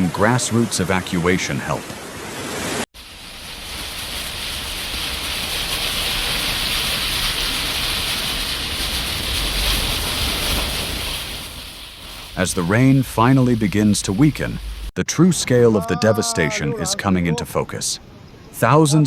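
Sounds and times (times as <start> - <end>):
churning floodwater rushing: 0.0 - 14.9.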